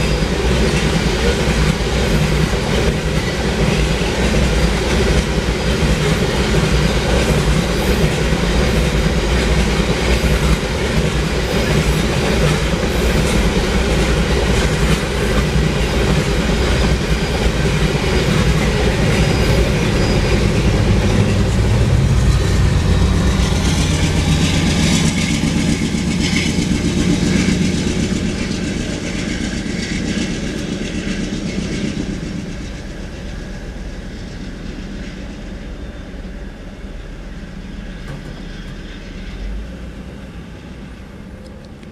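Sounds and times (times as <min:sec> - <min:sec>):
train wheels clacking over rail joints: 0:00.0 - 0:35.5
diesel locomotive drone: 0:00.0 - 0:41.9.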